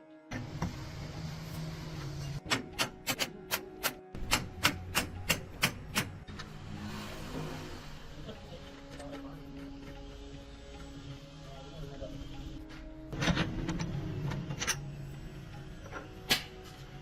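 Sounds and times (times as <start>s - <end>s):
hammer strikes: 2.4s - 6.5s.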